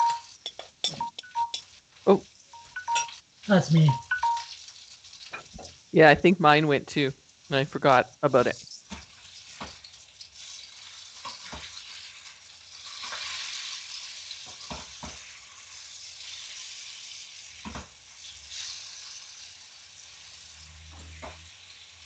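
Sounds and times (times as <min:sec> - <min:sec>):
chicken frying in oil: 0:04.2 - 0:06.0, 0:07.1 - 0:22.0.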